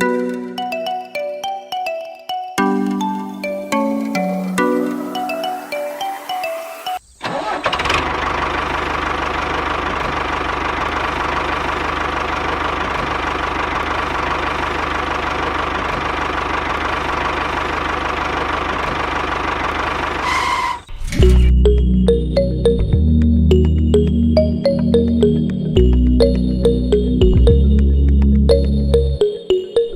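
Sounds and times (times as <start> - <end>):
engine idling with knock: 7.8 - 20.5, 25.2 - 28.3.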